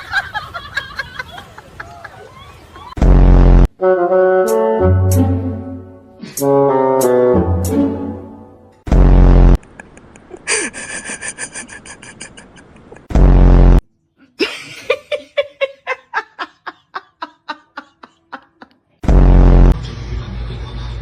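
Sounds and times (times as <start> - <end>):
loud buzzy blasts: 3.0 - 5.1, 8.9 - 9.6, 13.1 - 13.8, 19.0 - 19.8
laugh-like chattering pulses: 9.6 - 13.1.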